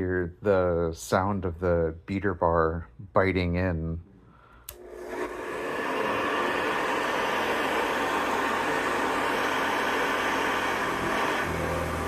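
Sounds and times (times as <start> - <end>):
vacuum cleaner running: 4.7 - 12.0
deeper hum: 5.0 - 12.0.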